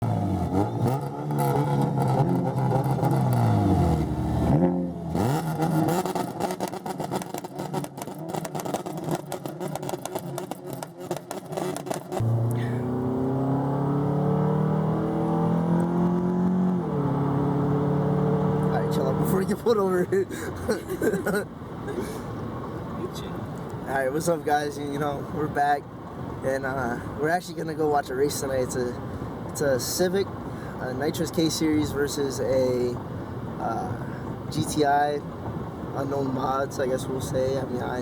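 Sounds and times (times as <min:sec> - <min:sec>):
car engine accelerating: 0:00.0 - 0:19.6.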